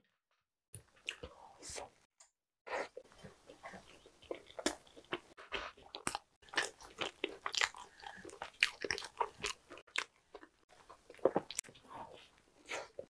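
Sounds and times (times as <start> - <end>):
chewing with mouth clicks: 3.0 - 13.0.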